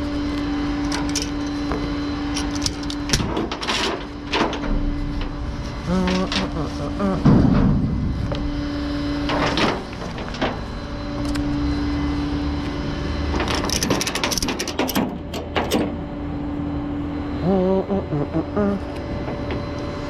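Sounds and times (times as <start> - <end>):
tow truck engine humming: 0.0 - 20.0
metallic clicks and rattles: 0.8 - 1.6, 2.3 - 5.3, 13.4 - 16.1
heavy knock: 7.2 - 9.8.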